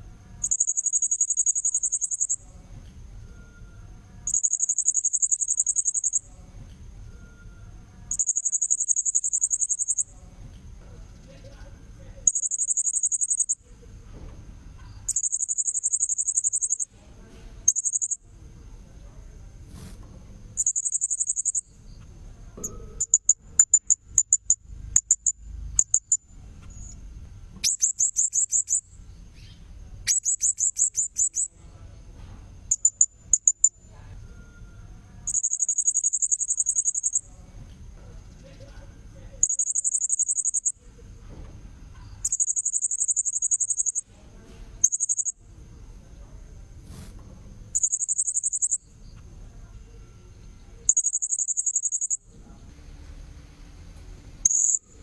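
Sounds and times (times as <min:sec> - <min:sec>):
parrot sharp chirps: 0:00.4 - 0:02.4, 0:04.3 - 0:06.2, 0:08.1 - 0:10.0, 0:12.3 - 0:13.6, 0:15.1 - 0:16.9, 0:20.6 - 0:21.7, 0:27.6 - 0:31.5, 0:35.3 - 0:37.2, 0:39.4 - 0:40.7, 0:42.2 - 0:44.0, 0:47.8 - 0:48.8, 0:50.9 - 0:52.2, 0:54.4 - 0:54.9.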